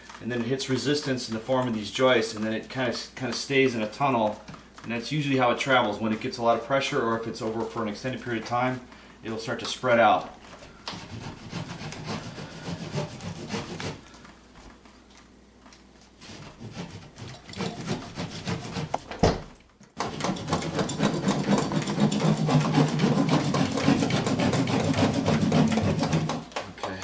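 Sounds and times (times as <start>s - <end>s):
saw cutting drywall: 10.9s - 14.0s, 16.2s - 19.1s, 20.0s - 26.6s.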